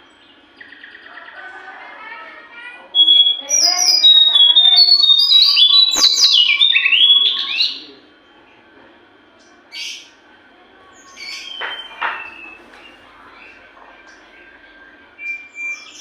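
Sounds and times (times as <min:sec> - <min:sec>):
songbird whistled notes: 0:02.9 - 0:07.9, 0:10.9 - 0:16.0.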